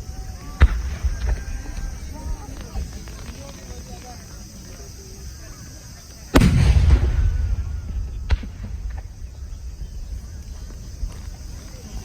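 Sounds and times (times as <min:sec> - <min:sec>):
sharp firework crack: 0:00.6 - 0:02.6, 0:06.3 - 0:11.6
firework shell booming: 0:06.3 - 0:11.5.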